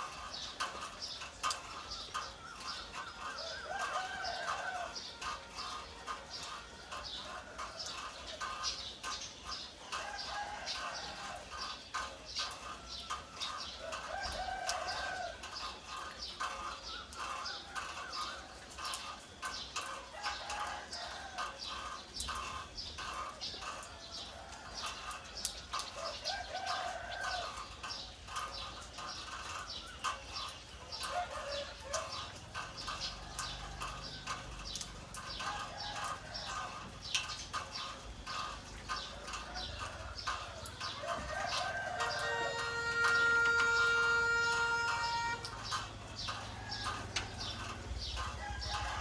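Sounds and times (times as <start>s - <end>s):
birds chirping: 21.6s - 49.0s.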